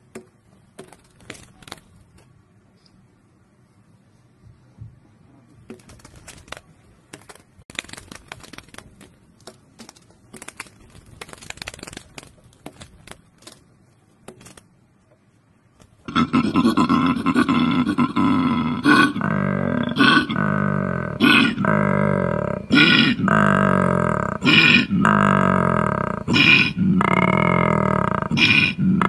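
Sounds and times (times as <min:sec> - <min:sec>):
faint clicks and crackles: 0:05.7 - 0:15.2
koala bellowing: 0:16.1 - 0:29.0.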